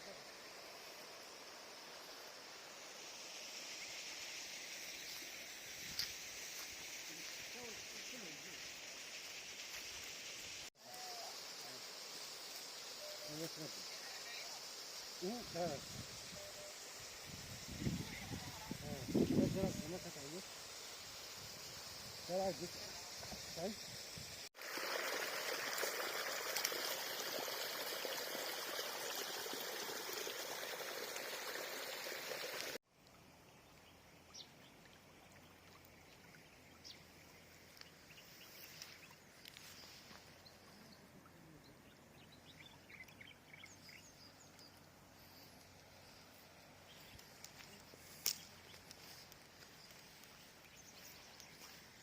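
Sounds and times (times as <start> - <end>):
faint bird chirps: 12.9 - 20.4, 35.4 - 52.0.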